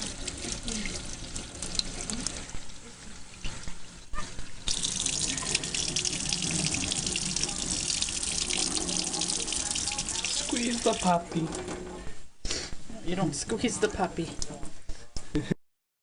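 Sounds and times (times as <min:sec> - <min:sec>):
tap water running and splashing: 0:00.0 - 0:11.9.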